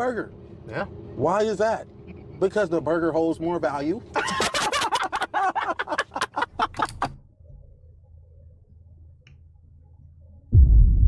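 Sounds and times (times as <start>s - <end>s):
faint low hum: 0.0s - 11.0s
man laughing: 4.1s - 7.1s.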